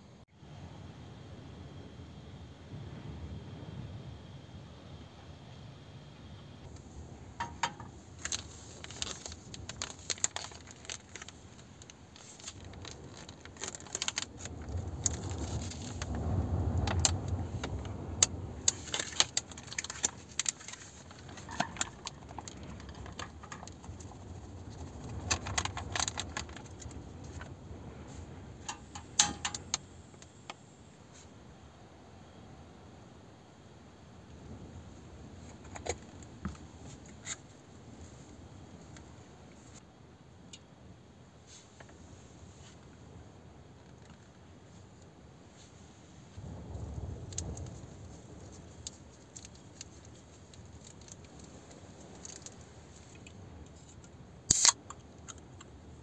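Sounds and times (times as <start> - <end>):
wind rumble on microphone: 0.4 - 33.3, 41.2 - 56.0
metal objects clinking and rattling: 28.7 - 29.7.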